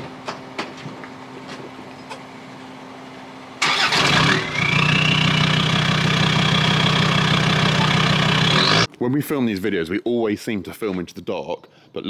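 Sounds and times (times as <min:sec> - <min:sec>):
diesel engine starting and idling: 0:02.3 - 0:08.9
turbo whine: 0:02.4 - 0:08.9.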